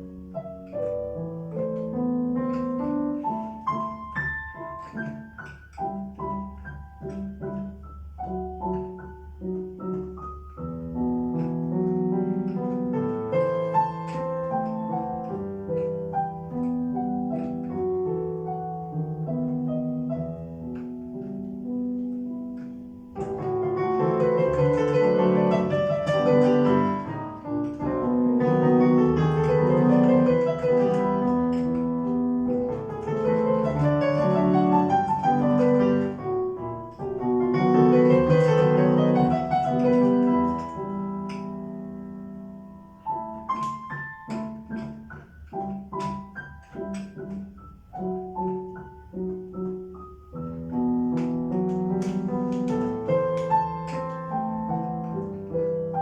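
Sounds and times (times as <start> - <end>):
solo piano: 0.0 - 56.0.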